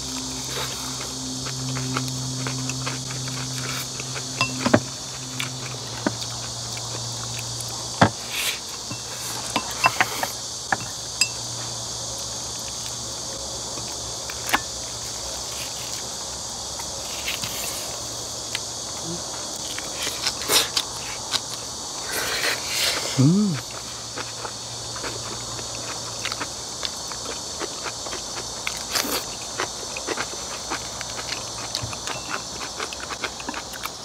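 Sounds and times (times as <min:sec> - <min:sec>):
insects chirring: 0:00.0 - 0:34.0
chopsticks clinking on bowls: 0:04.4 - 0:04.8, 0:08.9 - 0:11.4.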